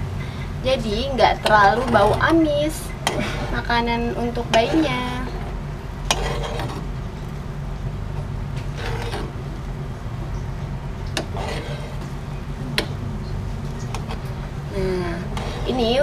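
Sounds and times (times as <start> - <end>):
steady low hum: 0.0 - 16.0
metal spoon stirring in pot: 1.2 - 7.0, 8.6 - 9.4, 11.0 - 13.0, 13.6 - 16.0.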